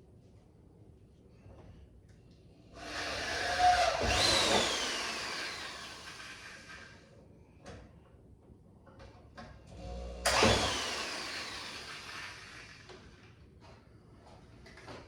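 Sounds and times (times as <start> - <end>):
power drill drilling into wood: 2.8 - 6.9, 9.8 - 12.9.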